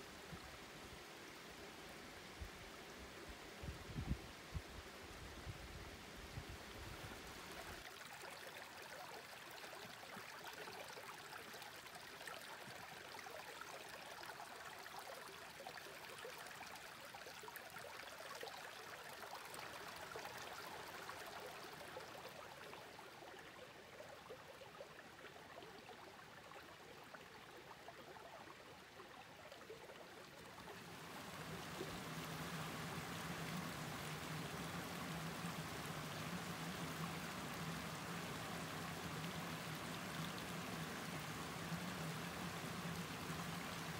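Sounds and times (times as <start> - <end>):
stream flowing over rocks: 0.0 - 43.9
low steady hum: 30.4 - 43.9.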